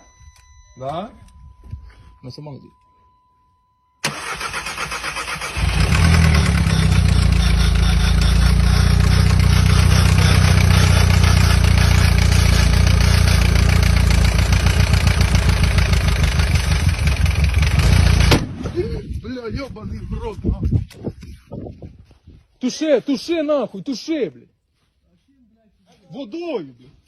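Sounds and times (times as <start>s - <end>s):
car starter cranking: 4.0s - 17.4s.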